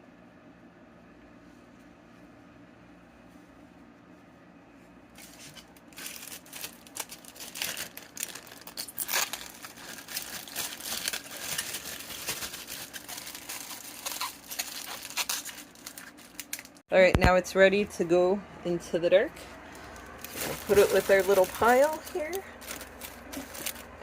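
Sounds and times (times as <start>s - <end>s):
paper and plastic bag rustling: 5.1s - 16.8s, 19.6s - 24.0s.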